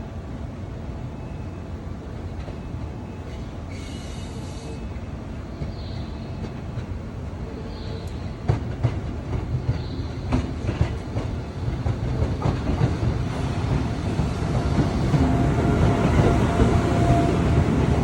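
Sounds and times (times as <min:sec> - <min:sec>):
train rumble: 0:00.0 - 0:18.0
train wheels clacking: 0:08.0 - 0:18.0.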